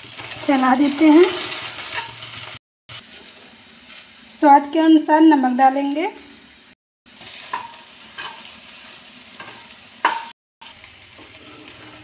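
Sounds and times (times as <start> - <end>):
okra sizzling in a pan: 0.0 - 12.0
metal spoon scraping a pan: 1.3 - 2.5, 7.2 - 8.6, 9.4 - 10.3, 11.2 - 12.0.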